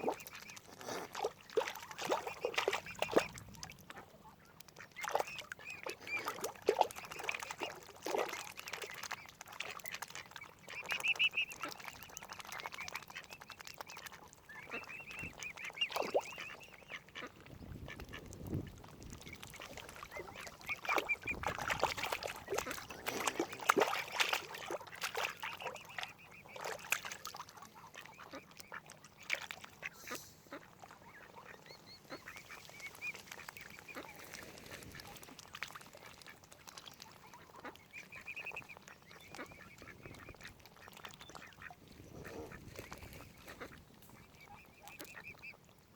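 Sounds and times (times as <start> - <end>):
ducks quacking: 19.4 - 36.4, 37.0 - 45.6.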